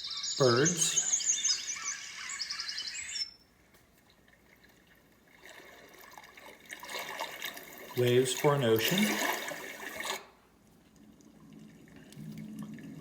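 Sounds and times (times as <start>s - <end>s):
recorded birdsong chirps: 0.0s - 3.6s.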